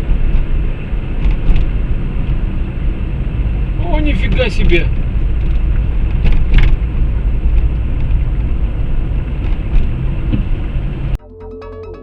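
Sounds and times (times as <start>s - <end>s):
car road and engine rumble: 0.0s - 11.2s
electronic music: 11.2s - 12.0s.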